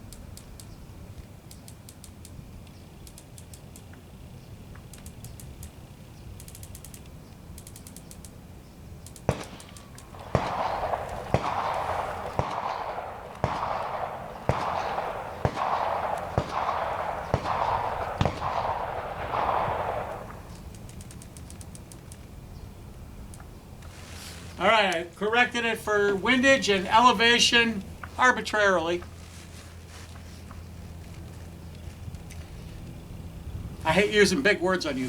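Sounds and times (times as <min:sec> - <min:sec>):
scope turret clicks: 0:00.0 - 0:04.1, 0:04.7 - 0:08.4, 0:09.0 - 0:23.9.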